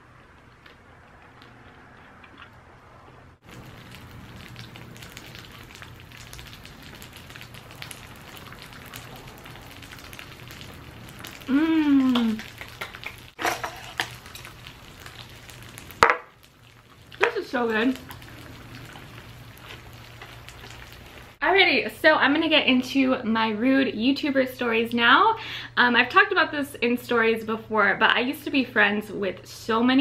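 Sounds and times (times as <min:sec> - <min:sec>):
food sizzling on a griddle: 0:03.4 - 0:21.4
person humming: 0:11.5 - 0:12.5.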